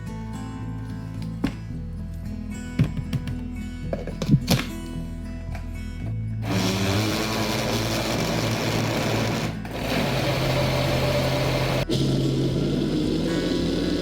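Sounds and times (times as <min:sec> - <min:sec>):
blender motor running: 0:06.4 - 0:14.0.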